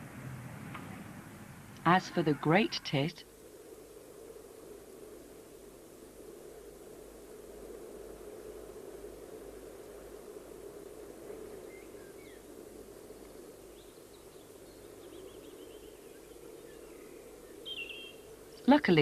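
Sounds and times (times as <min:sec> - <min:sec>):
background hiss: 0:00.0 - 0:19.0
small birds chirping: 0:11.5 - 0:19.0.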